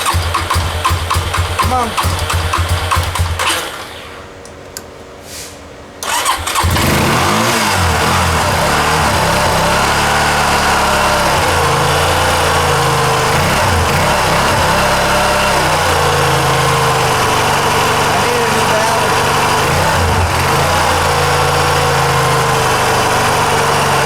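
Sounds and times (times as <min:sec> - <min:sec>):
engine idling unevenly: 0:00.0 - 0:03.9, 0:06.1 - 0:24.0
starter motor cranking: 0:00.0 - 0:04.3, 0:06.0 - 0:24.0
click: 0:04.4 - 0:04.9.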